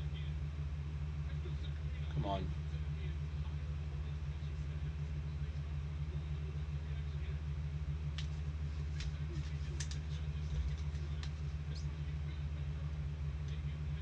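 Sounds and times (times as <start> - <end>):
low-pitched room hum: 0.0 - 14.0
trading cards clicking and scraping: 8.2 - 11.7.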